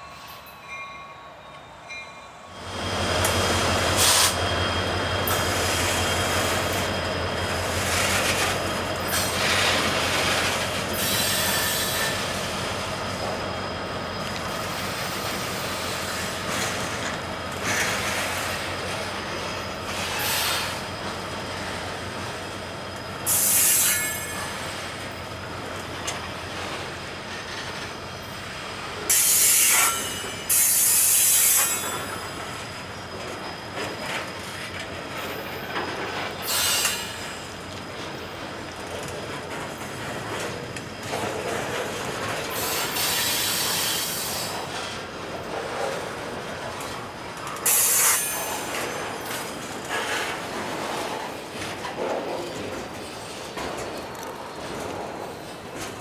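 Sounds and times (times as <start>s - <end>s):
train cars clattering on rails: 0.0s - 56.0s
high wheel squeal: 0.1s - 25.7s, 26.3s - 56.0s.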